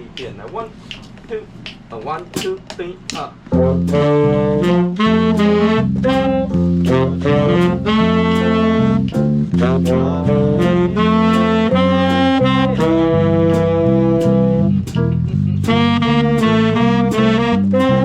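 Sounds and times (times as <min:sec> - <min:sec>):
drum strokes: 0:00.0 - 0:18.0
bass line: 0:02.4 - 0:18.0
swing band playing jazz: 0:02.4 - 0:18.0
saxophones: 0:03.5 - 0:14.9, 0:15.6 - 0:18.0.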